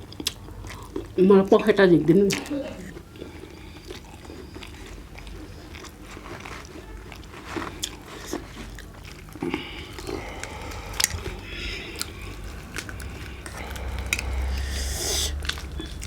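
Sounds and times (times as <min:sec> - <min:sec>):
person biting and chewing: 0:07.1 - 0:16.0.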